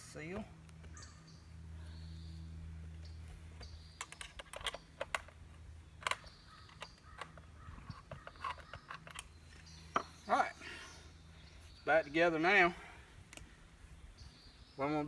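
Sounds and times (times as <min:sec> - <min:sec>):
clicks and taps of hard parts: 0:04.0 - 0:05.4.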